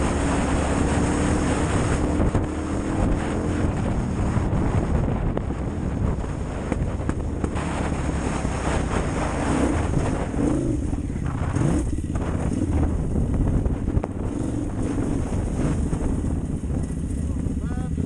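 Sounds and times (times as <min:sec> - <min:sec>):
motorcycle engine revving under load: 0:00.0 - 0:18.0
wind noise on microphone: 0:00.0 - 0:18.0.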